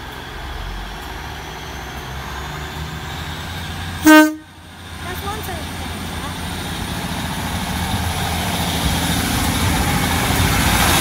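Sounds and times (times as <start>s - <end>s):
diesel train engine running: 0.0s - 11.0s
train horn toot: 4.0s - 4.5s.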